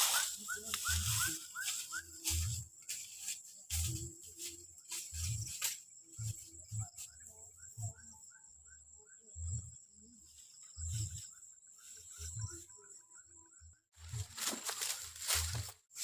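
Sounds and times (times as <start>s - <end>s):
footsteps on forest floor: 0.0s - 7.2s, 14.0s - 16.0s
leaf litter and twigs crackling: 0.0s - 7.2s, 14.0s - 16.0s
high insect drone: 0.0s - 8.4s.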